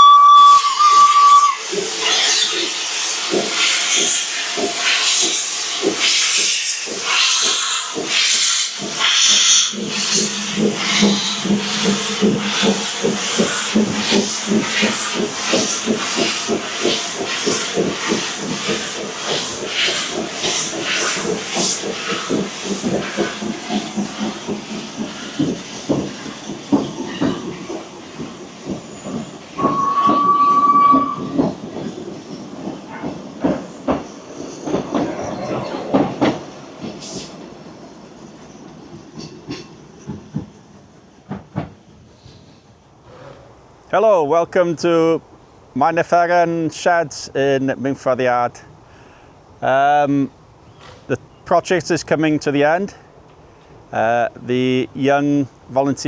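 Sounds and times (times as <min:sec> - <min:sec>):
train whistle blast: 0:00.0 - 0:01.6, 0:29.6 - 0:31.4
steam locomotive exhaust beats: 0:00.0 - 0:35.1
steady hiss of steam: 0:00.1 - 0:41.2, 0:41.9 - 0:56.0.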